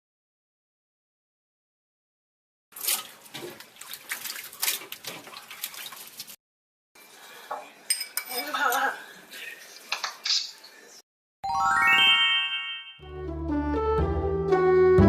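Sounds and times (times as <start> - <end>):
dishes clinking and clattering: 7.5 - 8.9.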